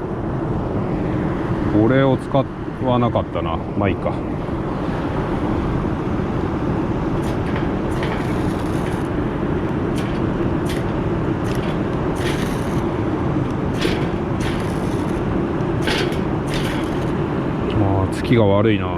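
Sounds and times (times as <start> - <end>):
steady low rumble: 3.5 - 18.9
fire-starter rod scraping: 7.0 - 17.7.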